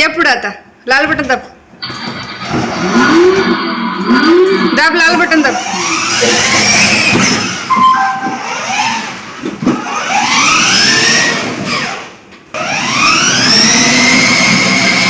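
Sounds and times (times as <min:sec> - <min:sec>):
short electronic tone: 0:01.8 - 0:05.2, 0:07.7 - 0:09.0
electronic siren wail: 0:01.8 - 0:06.9, 0:07.7 - 0:09.0.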